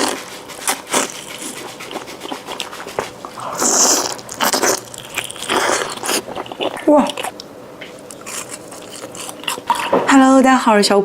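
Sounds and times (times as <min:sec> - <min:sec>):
slurp: 0:00.0 - 0:06.7
wet mouth eating noises: 0:00.0 - 0:10.0.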